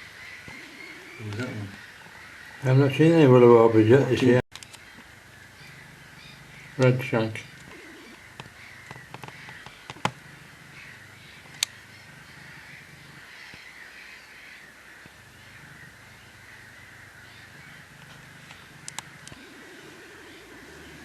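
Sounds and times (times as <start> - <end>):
distant birds chattering: 0.0 - 21.0
sharp clicks: 4.5 - 5.8, 7.6 - 10.2, 11.4 - 11.8, 18.0 - 19.4.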